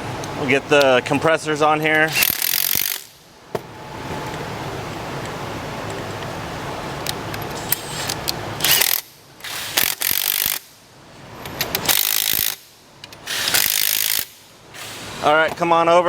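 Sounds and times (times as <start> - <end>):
ratcheting tool bursts: 2.0 - 3.2, 7.6 - 10.8, 11.6 - 15.2.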